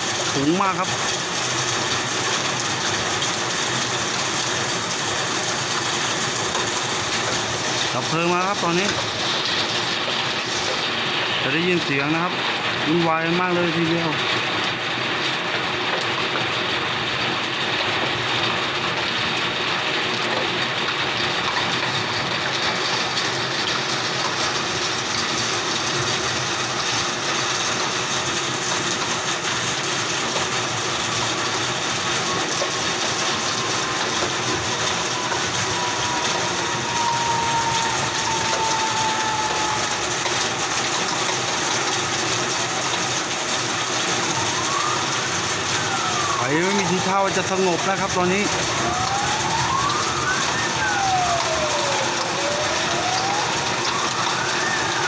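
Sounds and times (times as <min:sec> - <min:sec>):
large fire crackling and rushing: 0:00.0 - 0:55.0
faint tone sliding down: 0:47.7 - 0:55.0
rising tone: 0:47.7 - 0:55.0.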